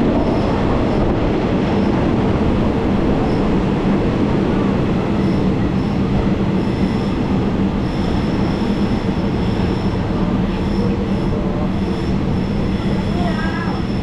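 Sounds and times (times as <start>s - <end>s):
train rumbling on rails: 0.0s - 14.0s
wheels squealing: 5.0s - 14.0s.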